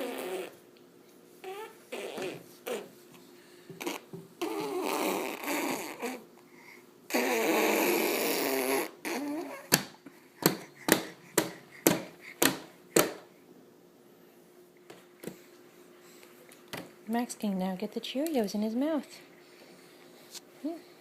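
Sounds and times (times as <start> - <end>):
babies blowing raspberries: 0.0 - 0.7, 1.4 - 3.0, 3.8 - 6.3, 7.1 - 9.8.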